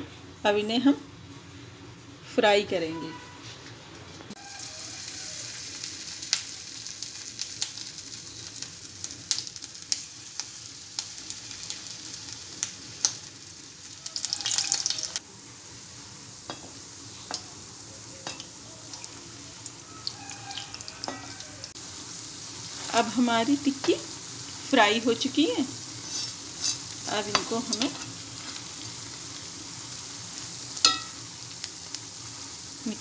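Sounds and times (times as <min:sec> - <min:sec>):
oil crackles and pops: 0:04.3 - 0:15.3
patties frying in hot oil: 0:04.3 - 0:33.0.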